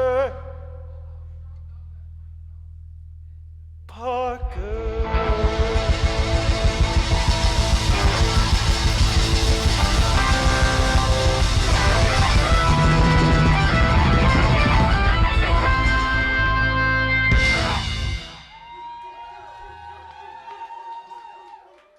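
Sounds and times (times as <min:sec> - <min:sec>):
fast even drum beat: 0:04.5 - 0:16.2
electric guitar: 0:04.9 - 0:18.5
ringing guitar chords: 0:05.0 - 0:18.5.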